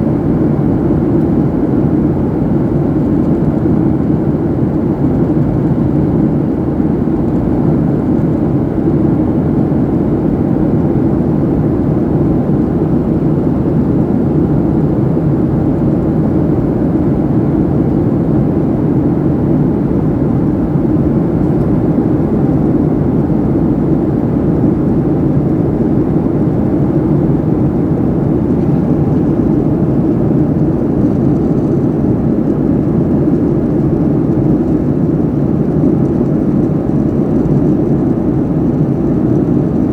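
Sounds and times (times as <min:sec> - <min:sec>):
airliner cabin engine noise: 0:00.0 - 0:39.9.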